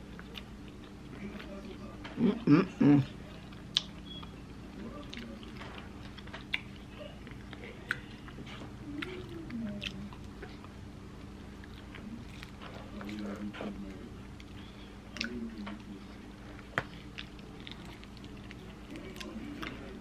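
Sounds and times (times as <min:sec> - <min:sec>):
chewing and mouth sounds: 0:00.0 - 0:20.0
low steady hum: 0:00.0 - 0:20.0.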